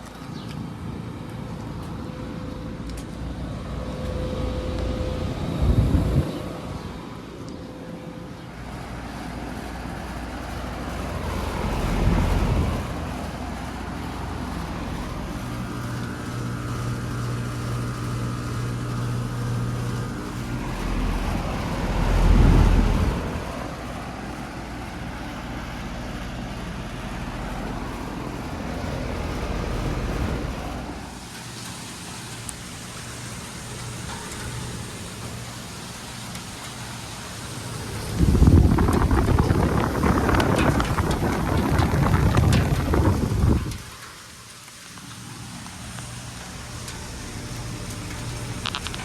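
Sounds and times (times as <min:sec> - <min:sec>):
heat pump humming: 0:00.0 - 0:49.0
vehicles passing: 0:00.0 - 0:49.0.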